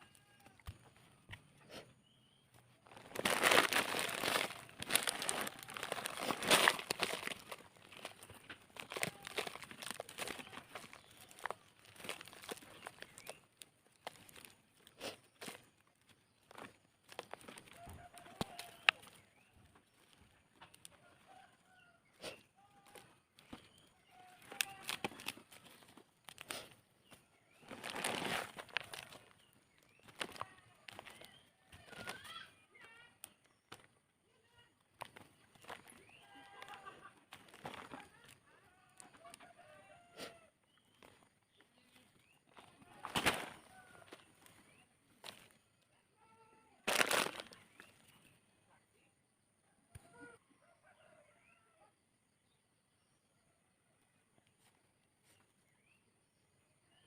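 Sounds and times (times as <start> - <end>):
plastic bag crinkling and rustling: 2.8 - 15.6, 23.4 - 26.6, 27.5 - 32.4, 46.9 - 47.8
plastic bag tearing crackles: 2.9 - 14.5, 24.4 - 26.6, 27.6 - 29.4, 43.0 - 43.6, 46.8 - 47.6.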